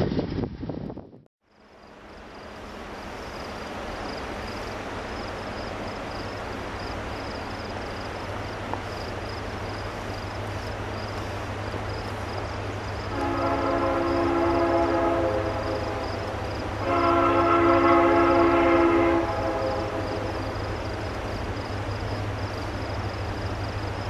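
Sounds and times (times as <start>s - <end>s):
distant freight train rumble: 0.0s - 24.0s.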